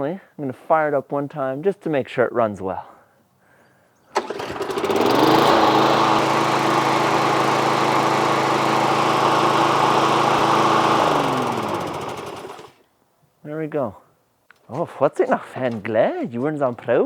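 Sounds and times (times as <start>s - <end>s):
lawn mower engine running: 4.2s - 12.8s.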